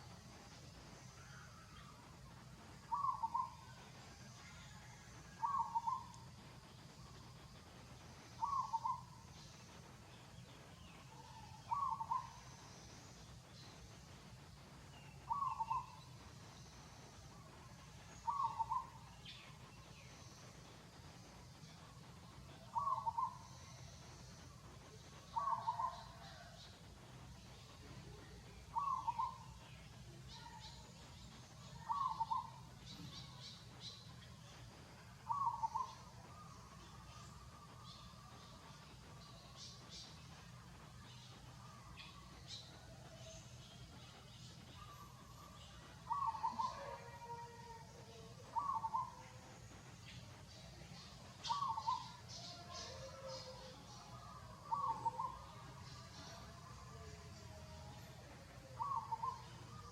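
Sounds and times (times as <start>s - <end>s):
faint high chirping: 0.0s - 59.9s
bird calling: 2.9s - 3.6s, 8.4s - 9.1s, 11.1s - 12.5s, 15.3s - 16.1s, 18.2s - 19.0s, 22.7s - 23.5s, 25.3s - 26.5s, 28.7s - 29.5s, 31.7s - 33.5s, 35.3s - 38.1s, 46.1s - 47.4s, 48.1s - 49.4s, 51.0s - 56.4s, 58.7s - 59.9s.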